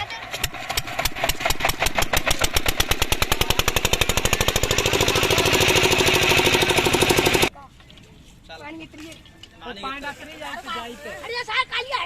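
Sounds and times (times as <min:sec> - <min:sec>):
diesel pump engine running: 0:00.2 - 0:07.5.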